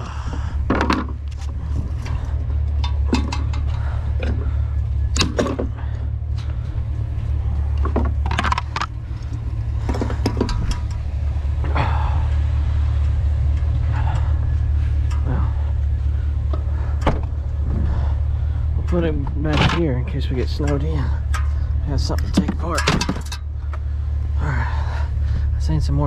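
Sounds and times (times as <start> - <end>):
vehicle low drone: 0.0 - 26.0
sharp clicks and knocks: 0.6 - 4.5, 5.1 - 6.6, 7.7 - 11.8, 18.8 - 23.9.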